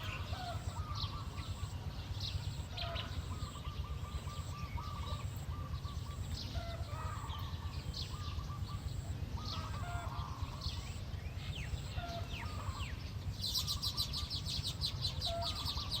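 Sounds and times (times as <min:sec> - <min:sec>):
small birds chirping: 0:00.0 - 0:16.0
steady low rumble: 0:00.0 - 0:16.0.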